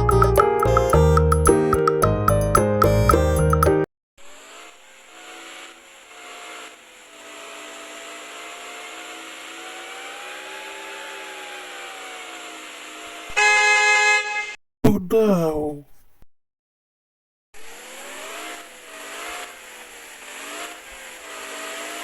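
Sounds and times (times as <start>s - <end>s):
mallet percussion music: 0.0s - 3.8s
car horn honk: 13.3s - 14.6s.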